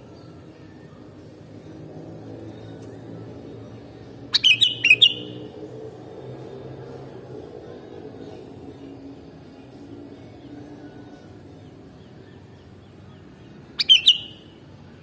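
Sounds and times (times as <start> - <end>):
bird whistled chirps: 4.3 - 5.5, 13.8 - 14.5.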